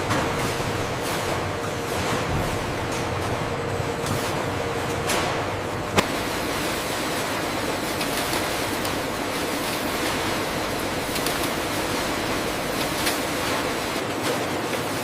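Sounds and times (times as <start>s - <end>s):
factory machinery running: 0.0s - 15.0s.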